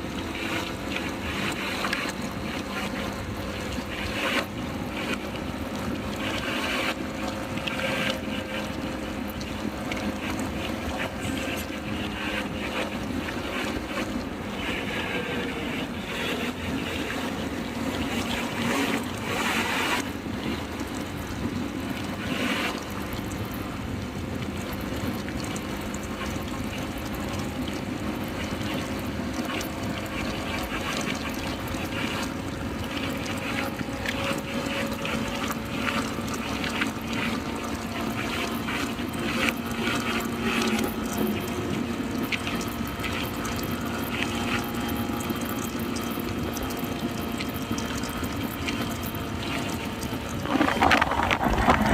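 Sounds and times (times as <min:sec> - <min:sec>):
road noise: 0:49.8 - 0:51.9
wind noise: 0:50.2 - 0:51.9.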